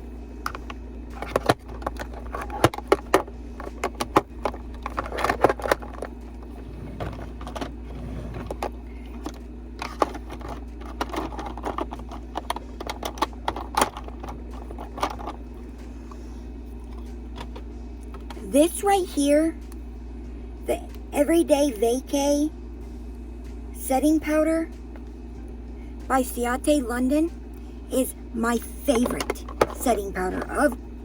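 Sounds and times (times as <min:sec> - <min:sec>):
makeup compacts clicking and clattering: 0:29.0 - 0:30.6.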